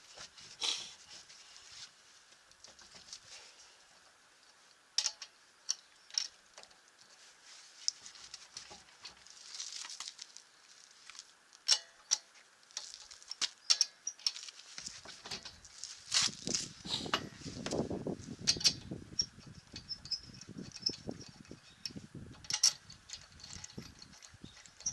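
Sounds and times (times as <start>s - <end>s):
soft rustling: 0.0s - 3.6s, 7.0s - 11.4s, 14.3s - 18.5s.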